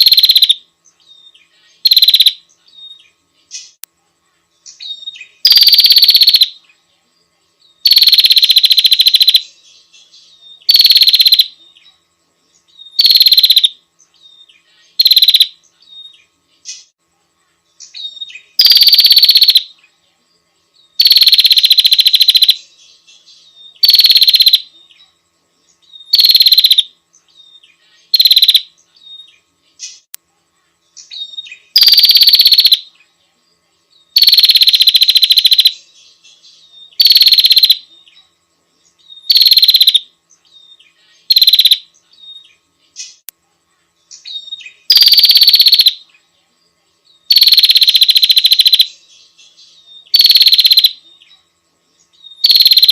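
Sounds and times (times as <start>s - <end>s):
bird buzzy rattling call: 0.0s - 0.6s, 1.8s - 2.5s, 4.7s - 6.6s, 7.8s - 9.6s, 10.6s - 11.6s, 12.8s - 13.8s, 14.9s - 17.0s, 17.8s - 19.7s, 21.0s - 22.7s, 23.6s - 24.7s, 25.9s - 26.9s, 28.1s - 30.1s, 31.0s - 32.9s, 34.2s - 35.9s, 36.9s - 37.9s, 39.0s - 40.1s, 41.3s - 43.3s, 44.2s - 46.0s, 47.3s - 49.0s, 50.1s - 51.0s, 52.2s - 52.9s.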